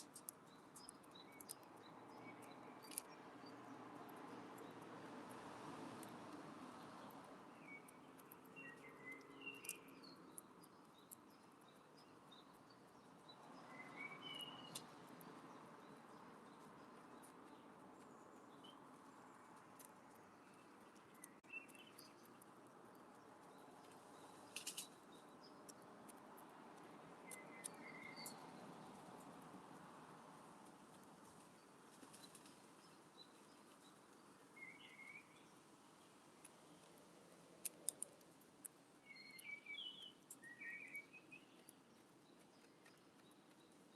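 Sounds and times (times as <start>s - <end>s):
bird chirps: 7.5s - 15.0s, 27.2s - 28.6s, 34.6s - 35.5s, 39.0s - 43.6s.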